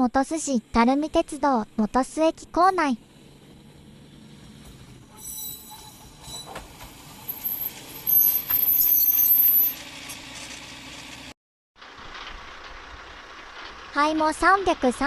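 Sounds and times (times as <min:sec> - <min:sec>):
railcar moving slowly: 0:03.0 - 0:15.0
train wheels squealing: 0:05.1 - 0:09.8.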